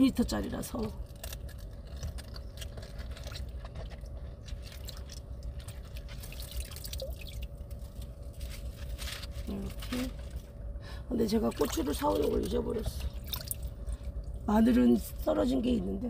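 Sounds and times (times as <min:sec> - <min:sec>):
faint steady hum: 0:00.0 - 0:16.0
water dripping and splashing in sink: 0:01.2 - 0:08.0, 0:11.3 - 0:14.0.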